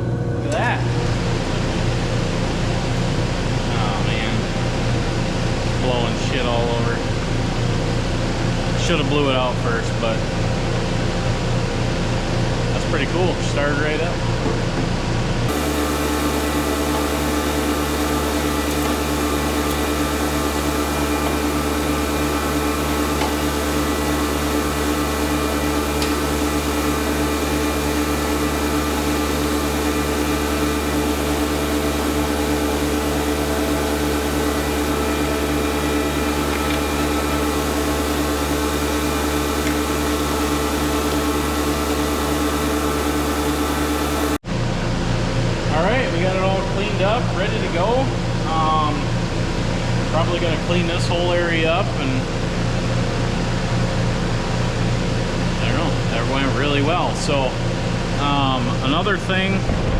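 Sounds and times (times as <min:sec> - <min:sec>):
furnace burner and blower drone: 0:00.0 - 0:59.9
low pulsing throb: 0:15.0 - 0:44.4, 0:57.7 - 0:59.9.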